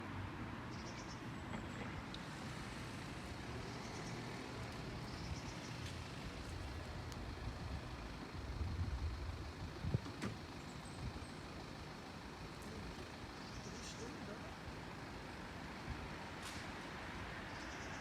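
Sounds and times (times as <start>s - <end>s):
small bird chirping: 0.7s - 1.2s, 3.6s - 4.3s, 5.0s - 5.9s, 13.4s - 14.2s, 17.5s - 18.0s
low background rumble: 2.3s - 16.2s.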